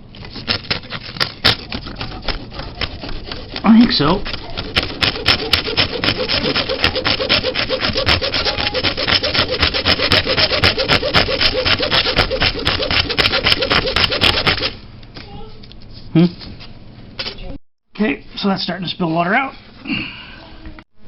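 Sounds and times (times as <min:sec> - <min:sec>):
hand saw cutting rubber hose: 0:00.2 - 0:14.8.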